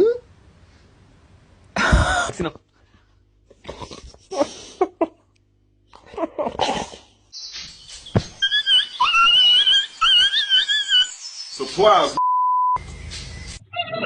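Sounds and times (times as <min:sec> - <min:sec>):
high wavering animal cry: 0:08.4 - 0:11.2, 0:13.6 - 0:14.0.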